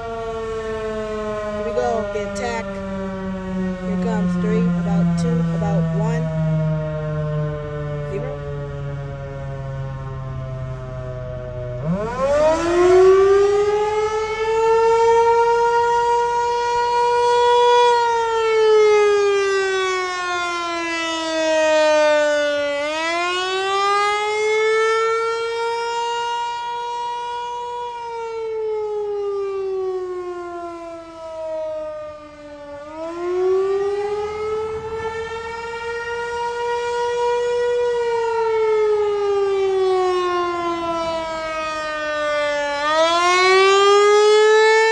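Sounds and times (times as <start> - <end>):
warning siren wailing: 0.0 - 44.9.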